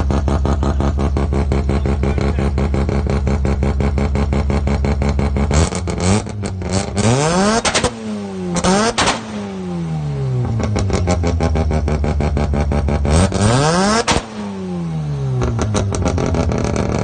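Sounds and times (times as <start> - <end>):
exhaust cracks: 0.0 - 17.0
rotary engine idling and revving: 0.0 - 17.0.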